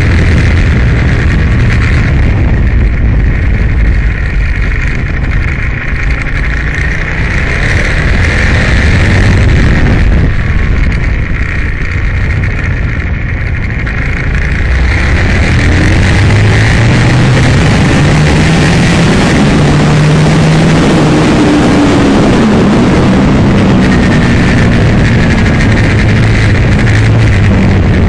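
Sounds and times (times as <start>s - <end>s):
motorcycle engine revving: 0.0s - 28.0s
wind rush: 0.0s - 28.0s.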